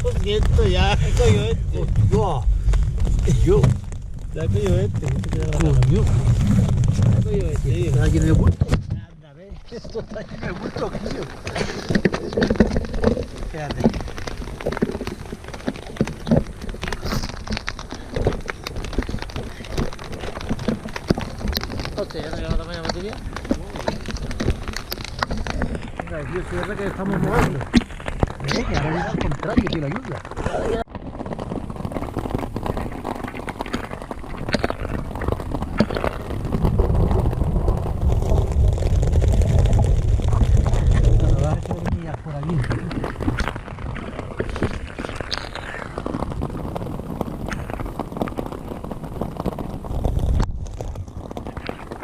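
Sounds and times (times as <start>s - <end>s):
rain falling on a tent: 0.0s - 8.8s, 9.4s - 52.0s
deep low rumble: 0.0s - 51.7s.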